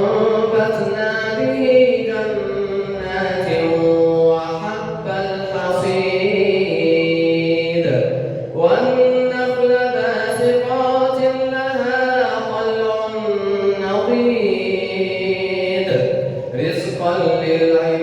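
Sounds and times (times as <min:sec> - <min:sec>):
man reciting melodically: 0:00.0 - 0:18.0
man breathing in: 0:08.1 - 0:08.6.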